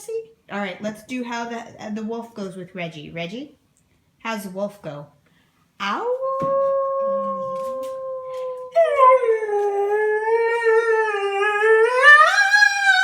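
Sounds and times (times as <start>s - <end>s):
dog howling: 6.2s - 13.0s
person howling: 6.2s - 13.0s.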